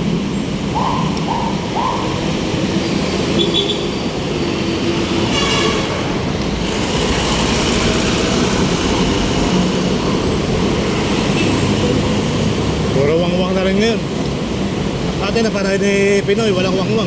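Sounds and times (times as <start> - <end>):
rumble of passing vehicles: 0.0 - 17.0
high horn-like tone: 5.2 - 6.1.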